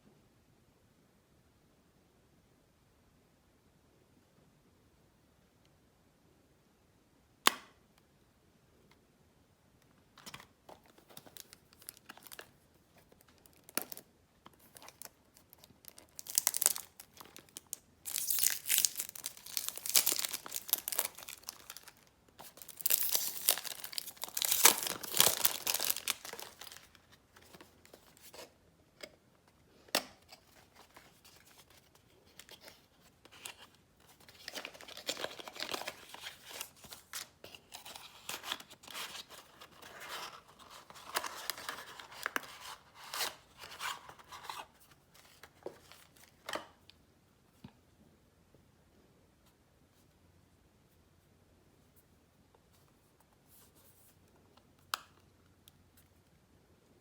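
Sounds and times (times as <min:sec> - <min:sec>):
packaging rustling and tearing: 0:10.7 - 0:28.5, 0:30.3 - 0:46.4.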